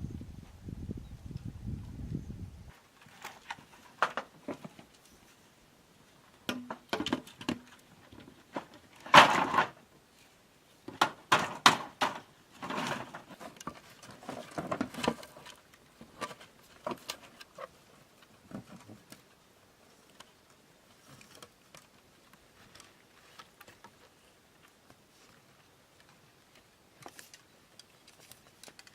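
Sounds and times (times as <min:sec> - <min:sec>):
bamboo scraping: 0:02.7 - 0:05.5, 0:06.6 - 0:19.3
bamboo knocking: 0:06.5 - 0:07.6.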